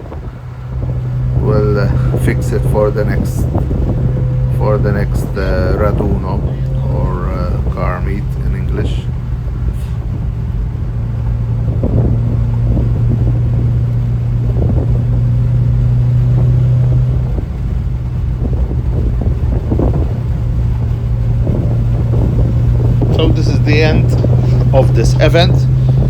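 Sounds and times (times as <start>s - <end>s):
low engine drone: 0.0s - 26.0s.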